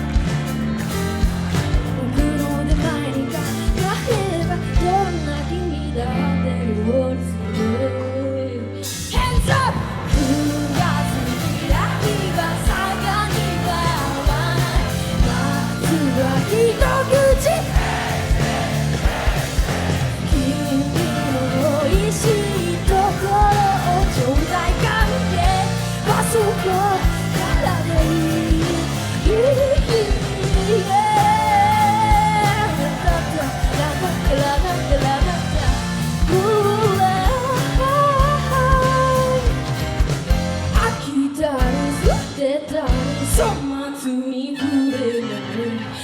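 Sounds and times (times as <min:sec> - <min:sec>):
pop-rock band playing: 0:00.0 - 0:46.0
person singing: 0:01.9 - 0:18.6, 0:20.2 - 0:39.6.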